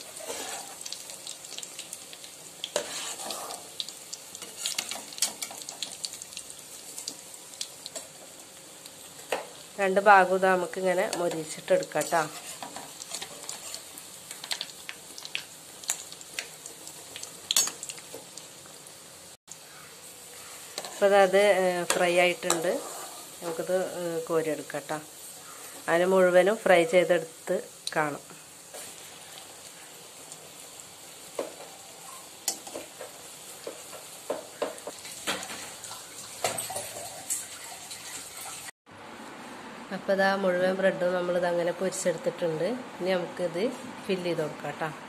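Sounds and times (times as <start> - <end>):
metal spatula scraping a pan: 0.0 - 0.9, 2.7 - 3.7, 4.4 - 5.6, 11.2 - 14.0, 20.4 - 21.3, 21.9 - 23.6
bread sizzling in a pan: 0.0 - 38.8.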